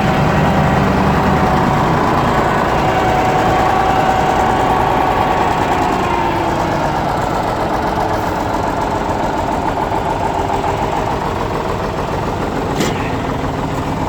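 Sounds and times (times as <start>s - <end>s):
grader diesel engine idling: 0.0s - 14.0s.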